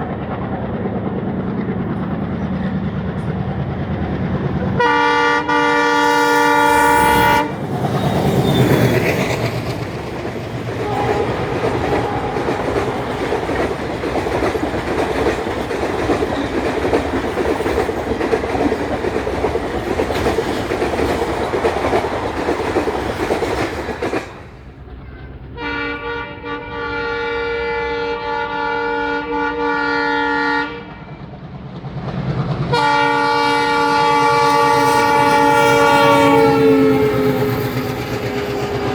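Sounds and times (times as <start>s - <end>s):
train wheel clatter: 0.0s - 4.9s, 6.0s - 25.6s, 31.0s - 38.9s
train passing with rumble: 0.0s - 38.9s
locomotive horn blasts: 4.7s - 8.5s, 10.8s - 13.6s, 24.9s - 31.2s, 32.7s - 38.9s.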